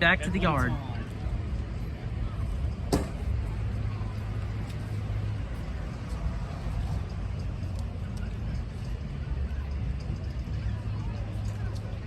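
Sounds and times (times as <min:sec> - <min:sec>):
locomotive low rumble: 0:00.8 - 0:12.0.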